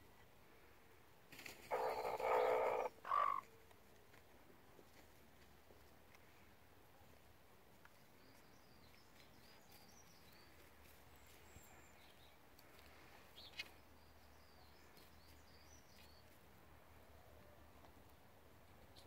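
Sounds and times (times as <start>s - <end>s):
faint twittering bird calls: 1.7s - 3.6s.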